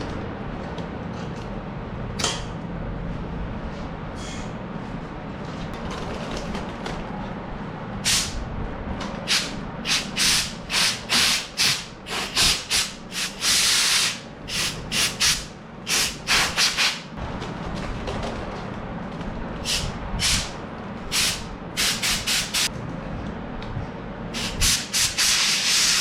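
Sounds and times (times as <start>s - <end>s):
steady low hum: 0.0s - 26.0s
compressed air hissing blasts: 8.0s - 8.4s, 9.2s - 17.1s, 19.6s - 22.7s, 24.4s - 26.0s.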